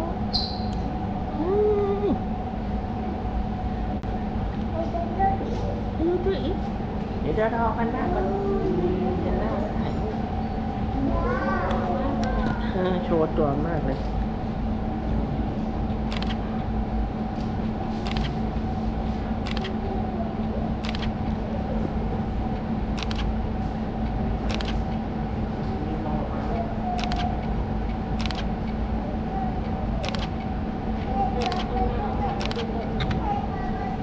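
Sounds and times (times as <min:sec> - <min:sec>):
low machine hum: 0:00.0 - 0:34.0
camera shutter clicks: 0:16.1 - 0:16.4, 0:18.0 - 0:18.4, 0:19.4 - 0:19.7, 0:24.5 - 0:24.8, 0:27.0 - 0:27.2, 0:28.2 - 0:28.4, 0:30.0 - 0:30.3, 0:32.4 - 0:32.7.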